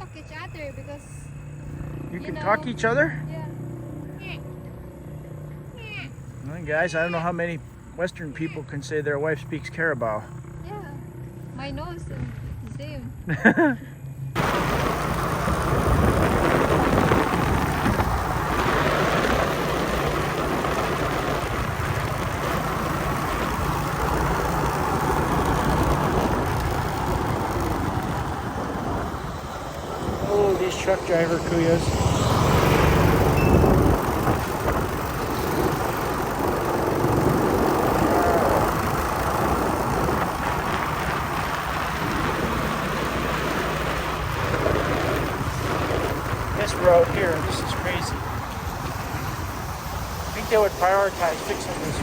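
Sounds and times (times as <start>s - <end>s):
motorcycle engine running: 0.0s - 52.0s
wind rushing over microphone: 14.4s - 52.0s.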